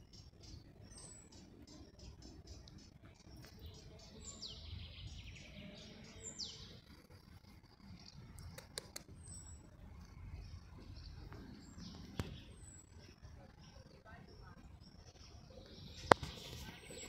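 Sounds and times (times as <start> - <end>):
sharp clicks: 8.4 - 9.1.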